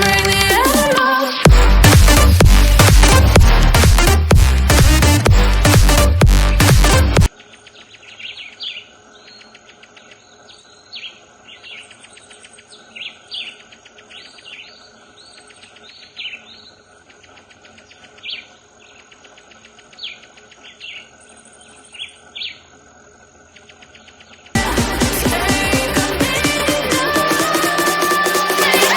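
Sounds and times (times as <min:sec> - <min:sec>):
bird chirps: 0:07.3 - 0:22.7
fast high trill: 0:24.6 - 0:28.9.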